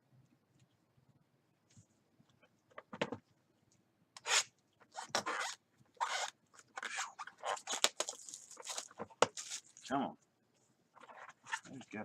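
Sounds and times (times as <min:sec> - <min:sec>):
packaging rustling and tearing: 0:05.3 - 0:09.9.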